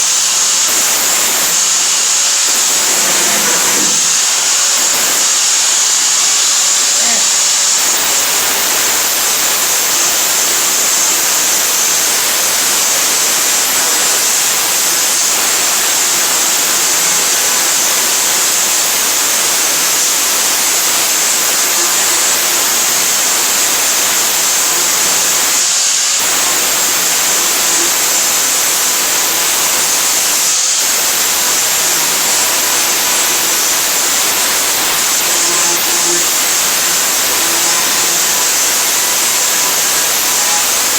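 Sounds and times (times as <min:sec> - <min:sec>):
power grinder grinding steel: 0:00.3 - 0:05.4, 0:30.6 - 0:40.9.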